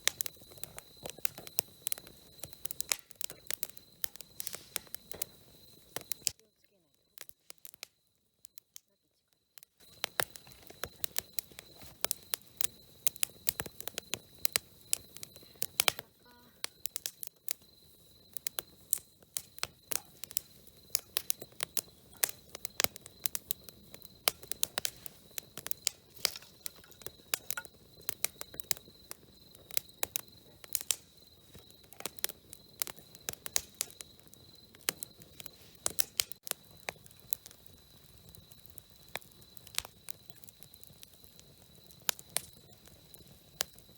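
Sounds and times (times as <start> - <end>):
campfire crackling: 0.0 - 43.9
faint steady high tone: 15.2 - 16.9.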